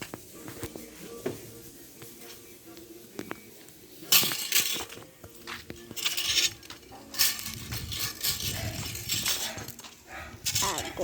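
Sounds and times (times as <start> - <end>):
hard objects clattering and clinking: 4.1 - 11.0.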